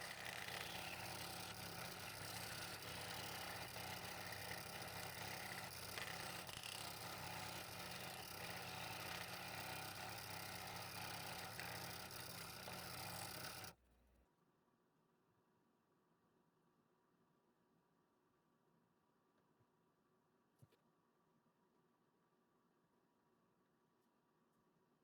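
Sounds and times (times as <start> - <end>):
electric power tool motor hum: 0.0 - 13.8.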